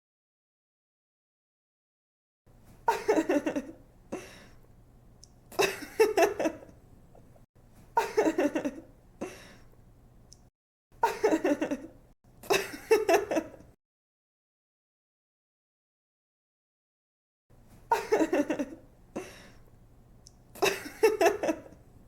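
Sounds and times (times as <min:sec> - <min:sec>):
woman giggling: 0:02.9 - 0:03.8, 0:05.6 - 0:06.7, 0:08.0 - 0:08.9, 0:11.0 - 0:13.7, 0:17.9 - 0:19.4, 0:20.6 - 0:21.8.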